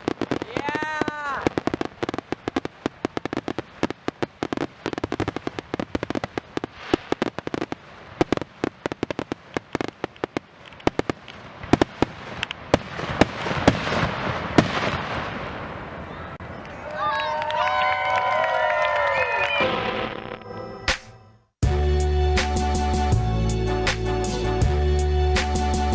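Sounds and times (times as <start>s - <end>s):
heavy firework booms: 0.0s - 16.4s
fireworks bangs and crackles: 0.0s - 17.7s.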